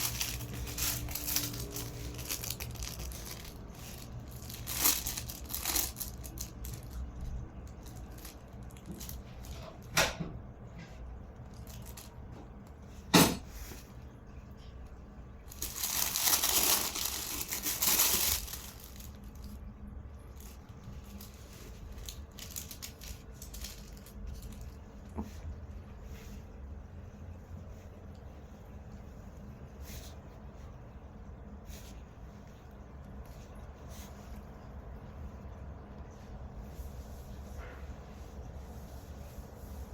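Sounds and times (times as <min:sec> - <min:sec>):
plastic bag crinkling: 0:00.0 - 0:09.9, 0:11.4 - 0:12.6, 0:15.4 - 0:25.1.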